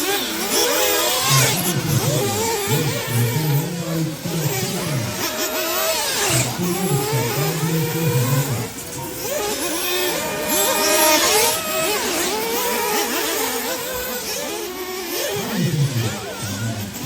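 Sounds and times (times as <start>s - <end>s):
rc buggy engines revving: 0.0s - 17.0s.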